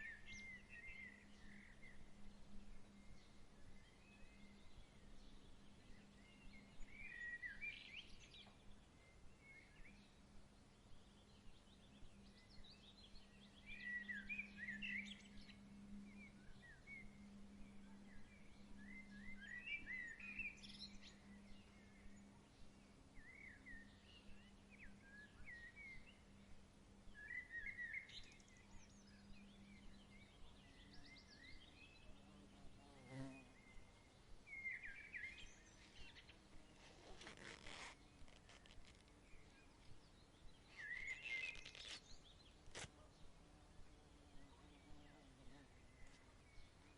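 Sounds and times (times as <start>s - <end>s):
low steady hum: 0.0s - 37.1s
birds chirping: 27.1s - 43.3s
brief rustle: 35.8s - 40.0s, 40.7s - 43.0s.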